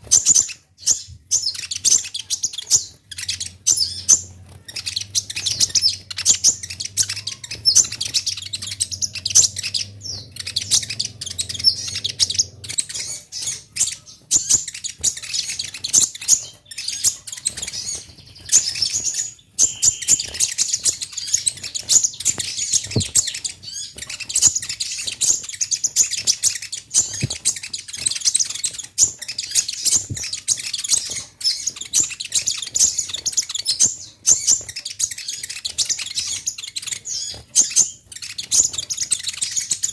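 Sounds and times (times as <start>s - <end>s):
sunbird twittering song: 0.0s - 39.9s.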